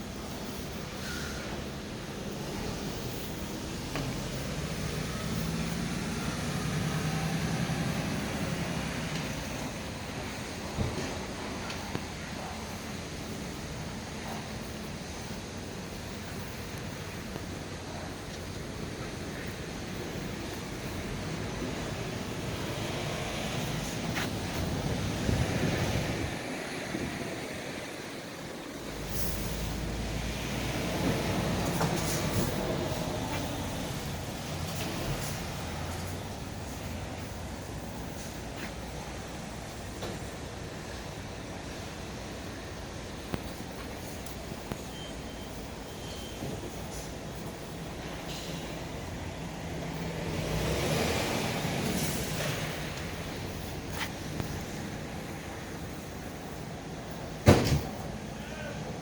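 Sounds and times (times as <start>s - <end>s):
diesel engine humming: 0.0s - 59.0s
wind: 0.0s - 59.0s
wind buffeting microphone: 13.0s - 29.2s.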